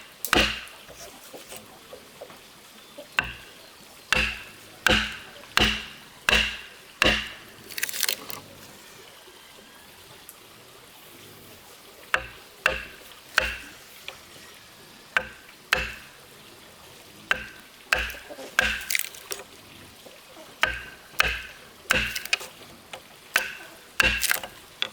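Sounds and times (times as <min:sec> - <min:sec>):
chopping strikes on wood: 0:00.0 - 0:01.6, 0:03.2 - 0:08.4, 0:12.1 - 0:13.8, 0:15.2 - 0:16.2, 0:17.3 - 0:19.4, 0:20.6 - 0:22.5, 0:23.4 - 0:24.9.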